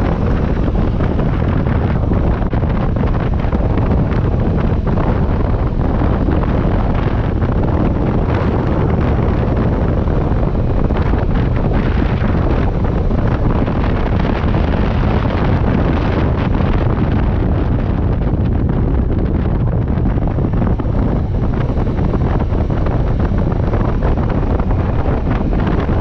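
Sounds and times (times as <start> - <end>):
wind on microphone: 0.0 - 26.0.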